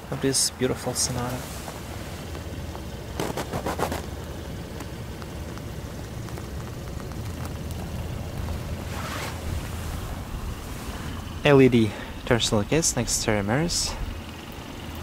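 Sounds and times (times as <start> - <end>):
car engine idling: 0.0 - 15.0
rustling: 1.1 - 11.5.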